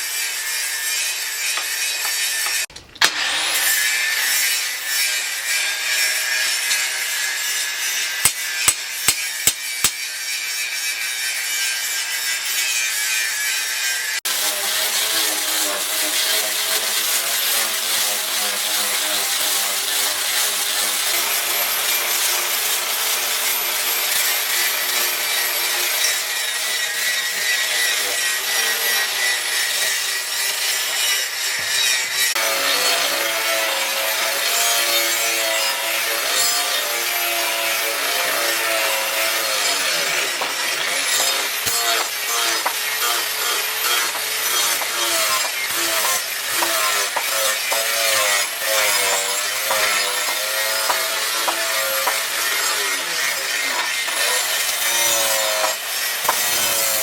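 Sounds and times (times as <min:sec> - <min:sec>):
abrasive rasping on knife blank: 0:38.0 - 0:54.2.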